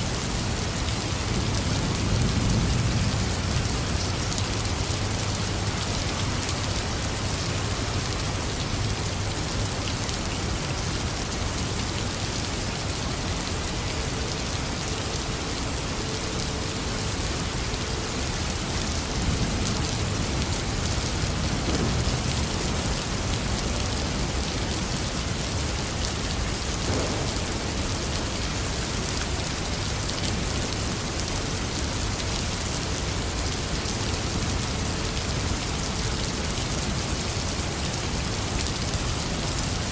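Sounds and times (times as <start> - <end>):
heavy rain falling: 0.0 - 39.9
low rumble of thunder: 0.5 - 7.3, 19.0 - 24.6, 26.5 - 29.0.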